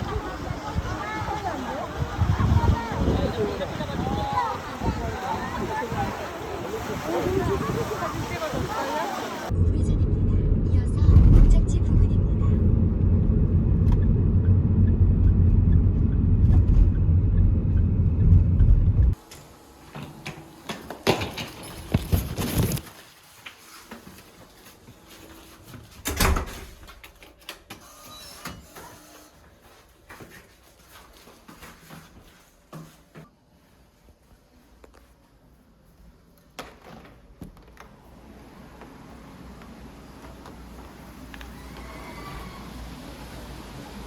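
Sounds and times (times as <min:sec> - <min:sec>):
car road noise rumble: 0:09.4 - 0:19.2.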